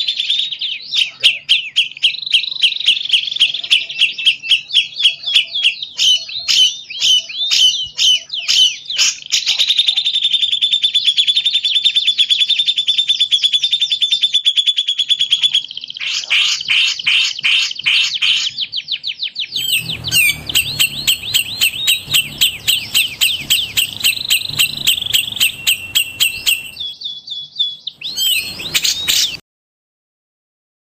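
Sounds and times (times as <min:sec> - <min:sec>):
songbird chirps and trills: 0:17.8 - 0:29.4.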